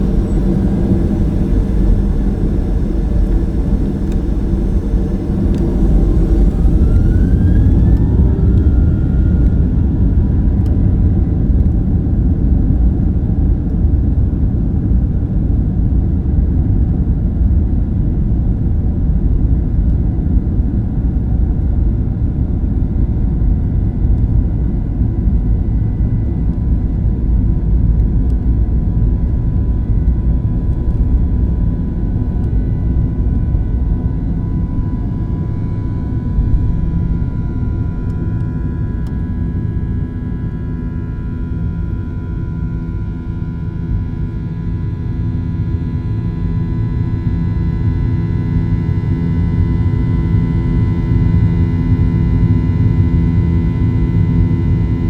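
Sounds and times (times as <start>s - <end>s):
jet engines spooling up: 0.0s - 11.7s.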